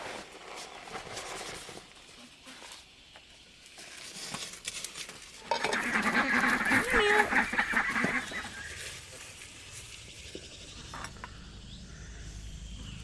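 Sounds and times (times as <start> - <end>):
fowl honking and squawking: 5.5 - 8.9.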